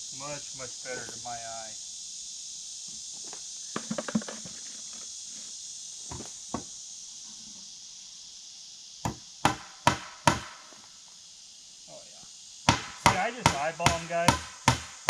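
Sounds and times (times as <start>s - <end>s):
crickets chirping: 0.0s - 15.0s
hammer striking nails into wood: 9.1s - 10.5s, 12.7s - 15.0s.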